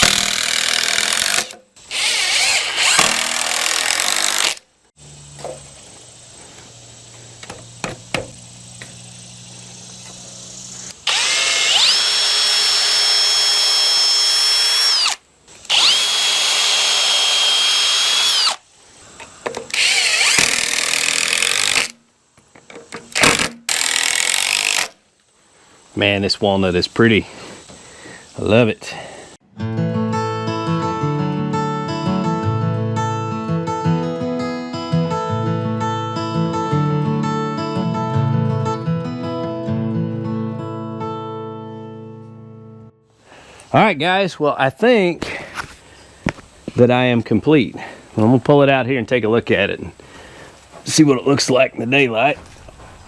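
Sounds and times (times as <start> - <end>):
drill whining: 0.0 - 4.6, 10.9 - 18.6, 19.7 - 22.0, 23.2 - 25.0
power tool noisy bursts: 0.0 - 4.6, 10.9 - 18.6, 19.7 - 22.0.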